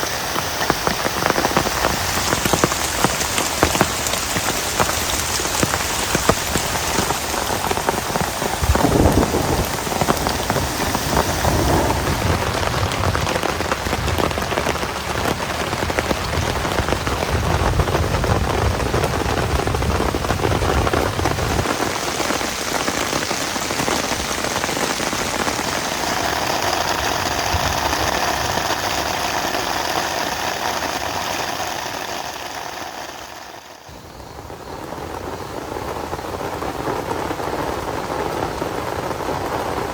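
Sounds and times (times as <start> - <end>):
heavy rain falling: 0.0 - 39.9
low rumble: 8.0 - 14.4.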